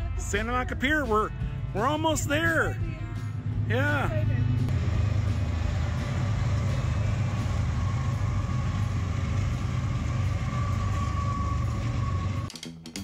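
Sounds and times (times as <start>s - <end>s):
diesel locomotives rumbling: 0.0s - 12.5s
faint high whine: 6.1s - 12.5s.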